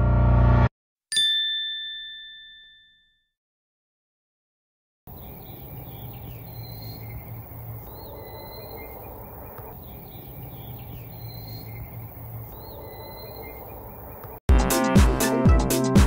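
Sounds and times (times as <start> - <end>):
faint insect drone: 5.1 - 14.4
low outdoor hum: 5.1 - 14.4.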